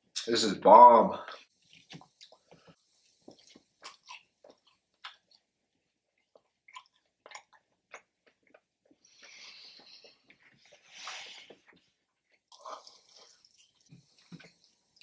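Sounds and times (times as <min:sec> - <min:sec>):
chewing with wet mouth clicks: 0:01.6 - 0:10.9
soft breathy hiss: 0:09.0 - 0:11.6.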